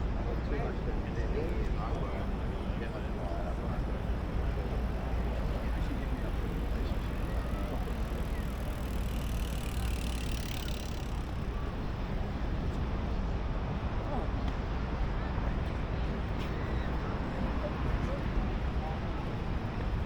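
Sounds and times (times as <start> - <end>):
traffic rumble: 0.0 - 14.8
vehicle passing with hiss: 3.9 - 12.4.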